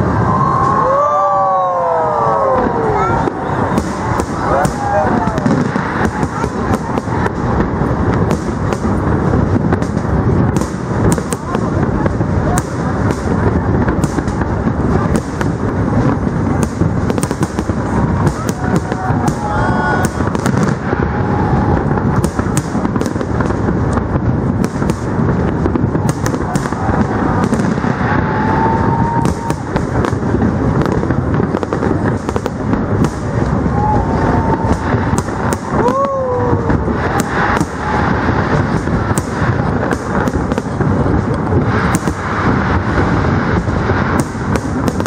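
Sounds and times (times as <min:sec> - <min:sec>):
crowd cheering: 0:00.0 - 0:07.5, 0:17.9 - 0:22.7, 0:25.8 - 0:30.4, 0:33.0 - 0:40.4
crowd voices: 0:00.0 - 0:45.0
fireworks bangs and crackling: 0:00.0 - 0:45.0.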